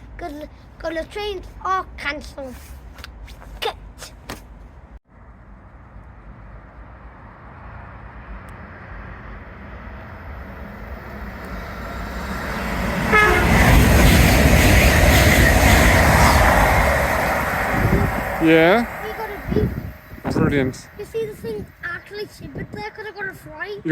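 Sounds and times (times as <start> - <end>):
freight train rumbling: 9.1 - 23.9
train horn beep: 13.1 - 13.8.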